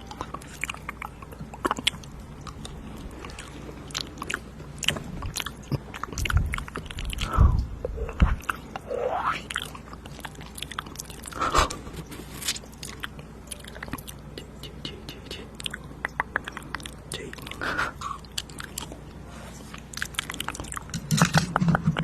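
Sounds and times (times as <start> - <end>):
wet mouth clicks and smacks: 12.8 - 17.5.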